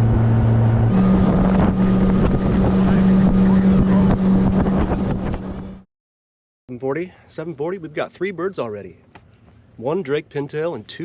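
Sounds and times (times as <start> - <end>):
wind on microphone: 0.0 - 5.8
boat motor running: 0.0 - 5.9.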